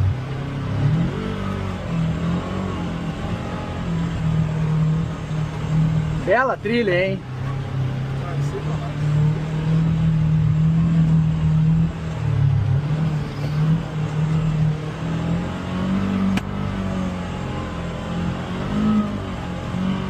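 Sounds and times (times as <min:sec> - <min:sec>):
utility vehicle engine running: 0:00.0 - 0:20.0
sharp click: 0:16.3 - 0:16.5.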